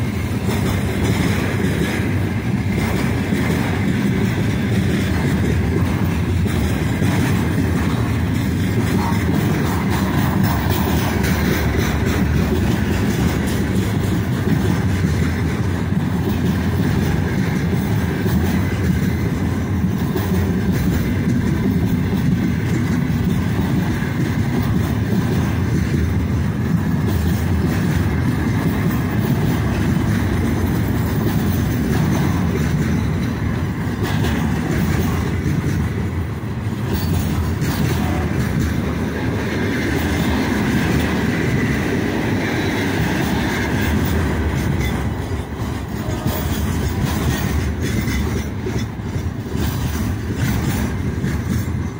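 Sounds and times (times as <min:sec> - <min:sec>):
freight train wheels rolling: 0:00.0 - 0:51.9.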